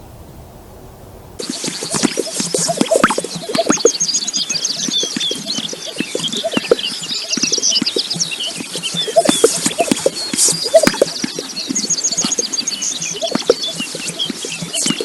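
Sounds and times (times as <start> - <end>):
lower short bird calls: 1.4 - 15.0
scratchy taps: 1.4 - 15.0
small birds chirping: 1.4 - 15.0.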